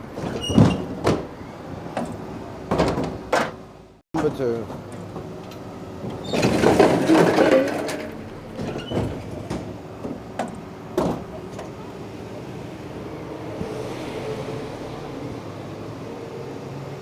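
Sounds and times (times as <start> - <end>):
garbage truck engine hum: 0.0 - 17.0
wheelie bin rattling clatter: 6.0 - 11.8.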